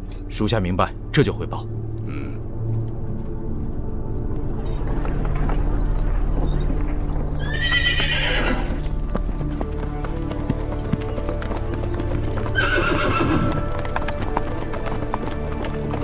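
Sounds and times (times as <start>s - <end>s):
background score music: 0.0s - 16.0s
horse hooves clattering: 1.9s - 16.0s
horse whinnying: 7.4s - 8.8s, 12.5s - 13.7s.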